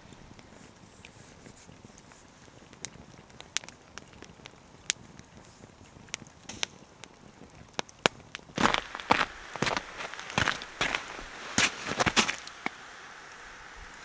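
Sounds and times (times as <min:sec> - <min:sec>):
campfire crackling: 0:00.0 - 0:14.0
loud rustle: 0:08.6 - 0:12.9.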